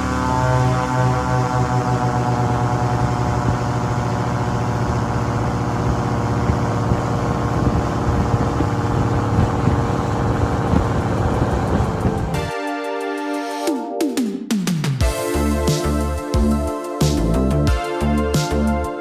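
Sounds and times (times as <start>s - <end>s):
airboat engine and propeller: 0.0s - 12.5s.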